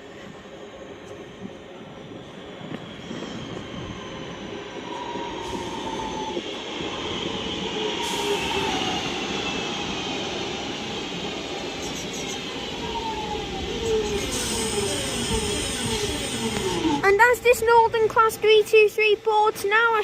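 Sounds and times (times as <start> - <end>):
train motors whining while braking: 13.5 - 17.0.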